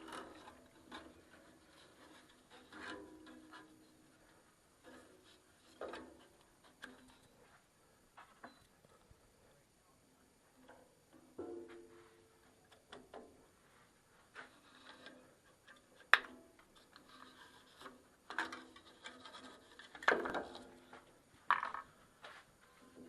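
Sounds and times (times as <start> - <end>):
wood scraping and knocking: 0.0 - 7.3, 16.1 - 23.0.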